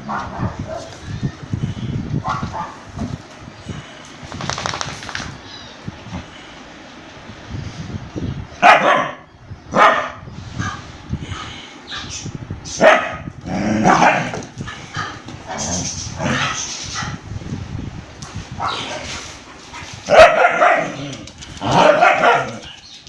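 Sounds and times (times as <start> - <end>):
dogs barking in a fight: 0.0 - 1.0, 2.2 - 2.9, 8.6 - 12.1, 12.8 - 14.4, 18.5 - 22.8.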